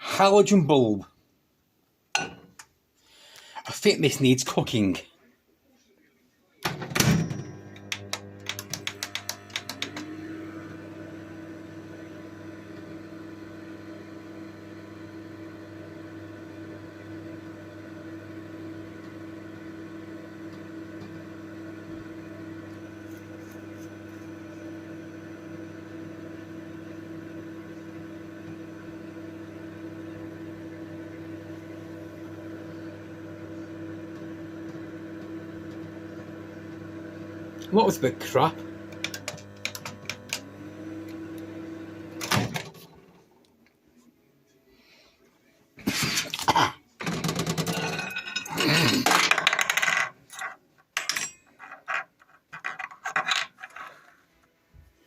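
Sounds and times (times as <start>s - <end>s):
microwave oven humming: 6.7s - 43.3s.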